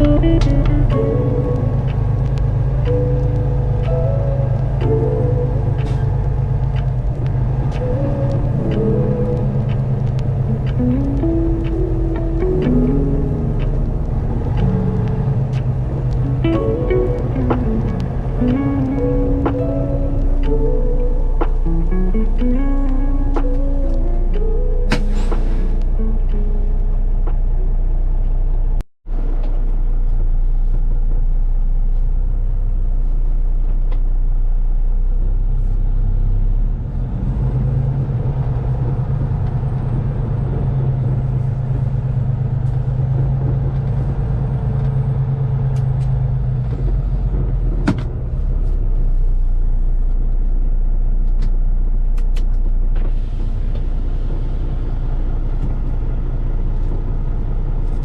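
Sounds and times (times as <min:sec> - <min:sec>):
road noise: 0:00.0 - 0:58.0
truck engine drone: 0:00.0 - 0:58.0
sharp click: 0:24.3 - 0:26.4.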